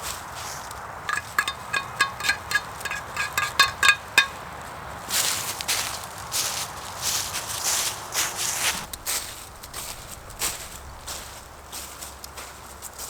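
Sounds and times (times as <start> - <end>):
crunching rustle: 0.0 - 13.0
metal cutlery clinking on dish: 1.1 - 4.4.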